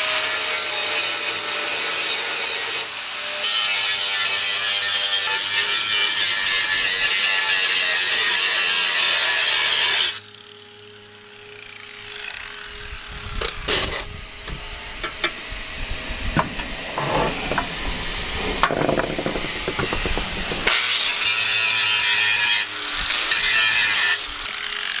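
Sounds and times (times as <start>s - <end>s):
loud power tool: 0.0s - 25.0s
metal pieces clicking and scraping: 16.4s - 20.8s.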